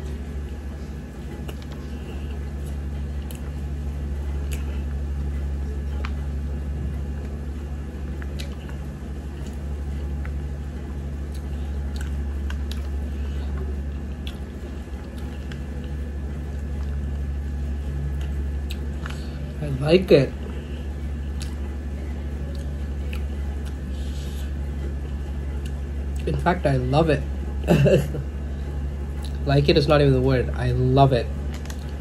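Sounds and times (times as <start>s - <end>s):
steady low hum: 0.0s - 32.0s
person chewing food: 1.3s - 3.6s, 4.4s - 5.0s, 8.2s - 10.4s, 11.1s - 19.6s, 20.4s - 21.6s, 29.2s - 29.4s, 31.5s - 32.0s.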